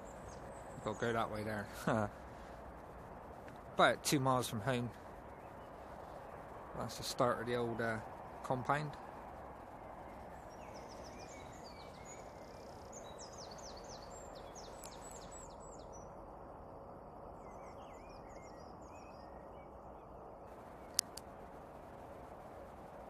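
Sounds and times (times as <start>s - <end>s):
outdoor background hum: 0.0s - 23.0s
small bird chirping: 9.8s - 16.2s, 17.4s - 21.2s
sharp click: 20.9s - 21.3s.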